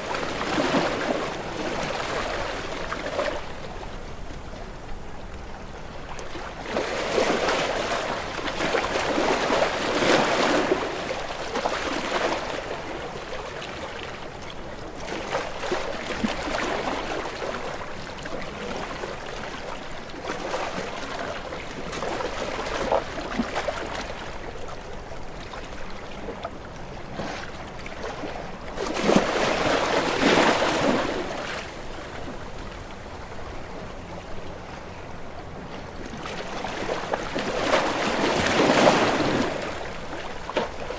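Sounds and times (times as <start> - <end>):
sea waves washing in: 27.0 - 40.9.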